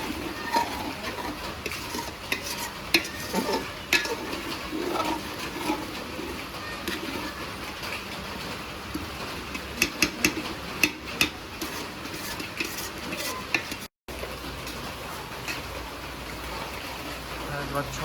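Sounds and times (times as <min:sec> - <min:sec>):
spatula scraping pan: 0:00.0 - 0:13.9
food sizzling in pan: 0:00.0 - 0:15.9.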